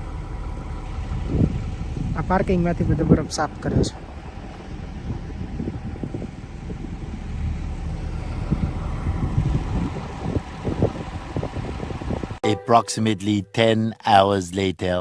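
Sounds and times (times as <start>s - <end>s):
snow-clearing machine engine: 0.0s - 12.4s
wind gusting on microphone: 1.0s - 12.4s.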